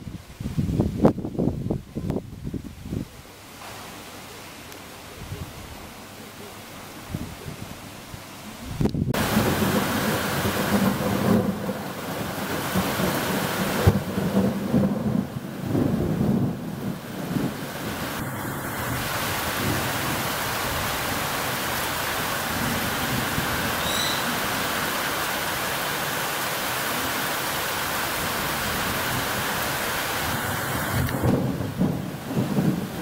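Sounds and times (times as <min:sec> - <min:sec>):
heavy rain on trees: 0:00.0 - 0:33.0
short high chirp: 0:23.8 - 0:24.3.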